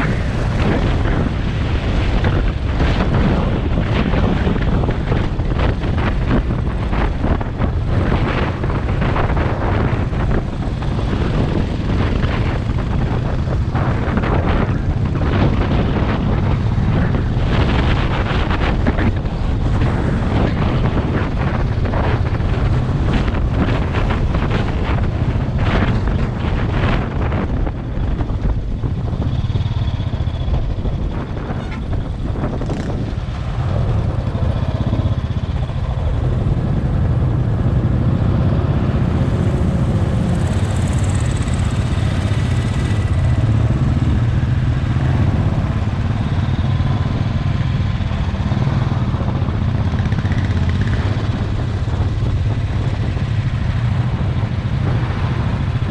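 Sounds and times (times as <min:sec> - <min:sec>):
motorcycle engine running: 0:00.0 - 0:55.9
wind buffeting microphone: 0:00.0 - 0:55.9.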